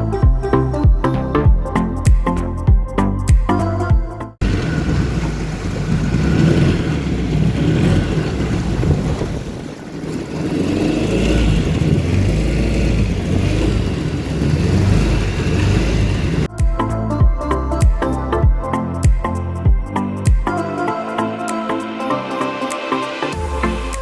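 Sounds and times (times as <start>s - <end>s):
boat engine rumbling: 4.4s - 16.5s.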